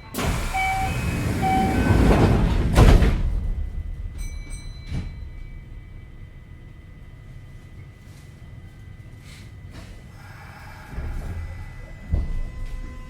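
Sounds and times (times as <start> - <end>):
train doors sliding shut: 0.0 - 5.5
doors closing with a thud: 0.1 - 5.4.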